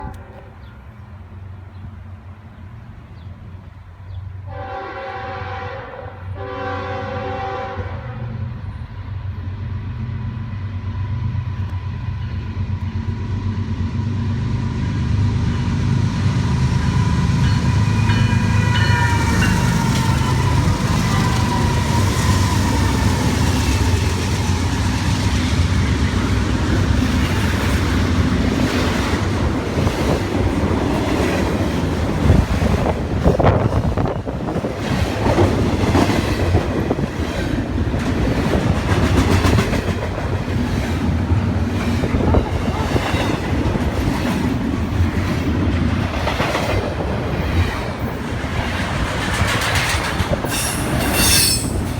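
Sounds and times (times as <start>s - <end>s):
locomotive horn blasts: 4.5s - 8.4s
locomotive engine rumble: 8.4s - 51.9s
wheels on rails: 16.8s - 51.9s.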